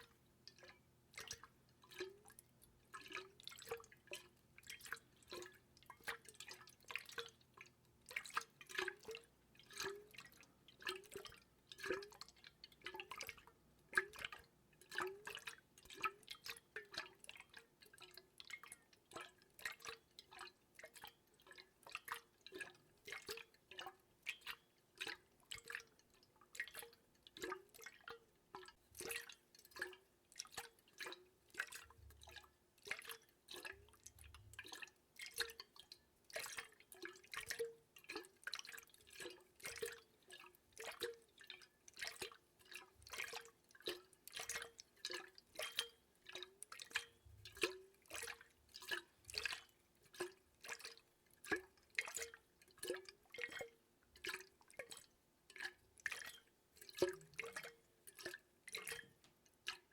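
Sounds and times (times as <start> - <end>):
water dripping into water: 0.0 - 59.9.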